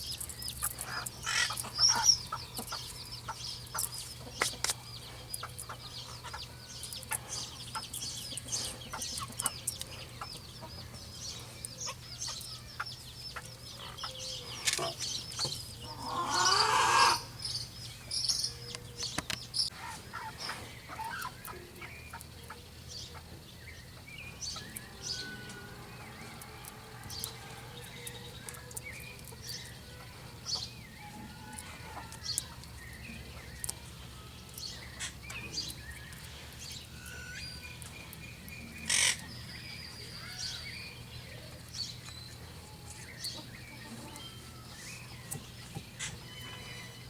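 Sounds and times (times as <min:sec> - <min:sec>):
small birds chirping: 0:00.0 - 0:47.0
chickens clucking: 0:00.2 - 0:17.4, 0:18.7 - 0:24.8, 0:41.0 - 0:46.4
loud chicken call: 0:15.9 - 0:17.3.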